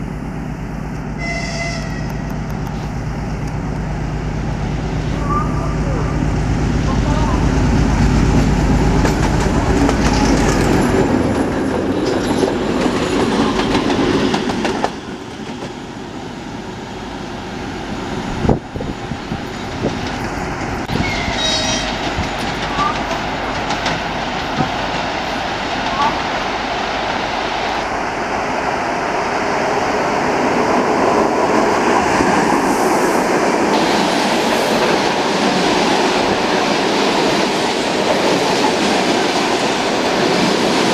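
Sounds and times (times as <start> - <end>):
diesel locomotive engine droning: 0.0 - 40.9
train wheels clattering: 8.8 - 15.8.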